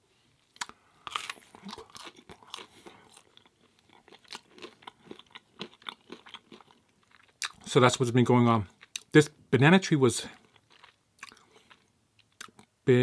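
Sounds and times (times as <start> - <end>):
crunchy chewing of pizza crust: 0.5 - 7.6, 10.3 - 12.6.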